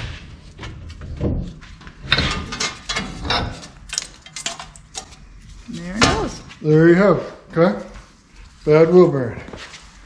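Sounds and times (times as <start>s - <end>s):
metal clanks and scraping: 0.0s - 5.2s.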